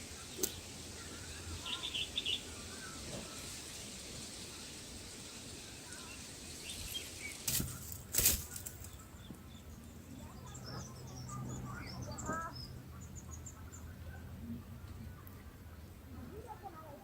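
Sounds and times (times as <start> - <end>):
bird wings rushing: 6.6 - 9.0.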